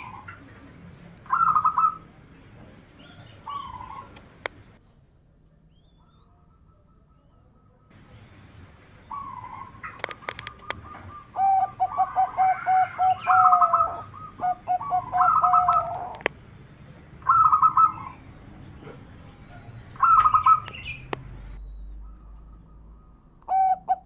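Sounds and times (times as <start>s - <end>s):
dove cooing: 0.0s - 0.6s, 1.3s - 2.1s, 3.0s - 4.4s, 9.0s - 16.3s, 17.2s - 21.1s, 22.0s - 24.0s
sharp clicks: 10.0s - 10.8s.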